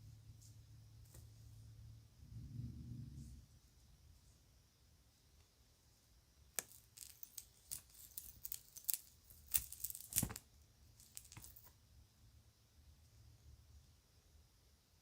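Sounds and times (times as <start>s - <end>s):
jewelry clicking: 6.6s - 10.4s, 11.0s - 11.7s.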